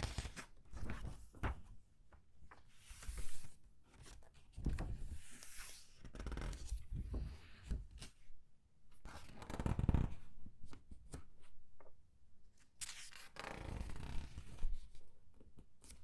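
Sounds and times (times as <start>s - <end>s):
paper pages rustling and crinkling: 0.0s - 8.1s.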